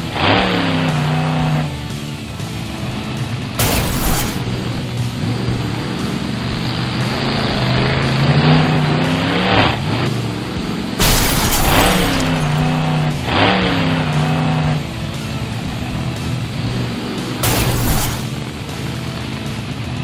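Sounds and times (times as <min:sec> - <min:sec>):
truck engine revving hard: 0:00.0 - 0:01.9, 0:02.5 - 0:19.4
sudden loud burst of noise: 0:03.6 - 0:04.9.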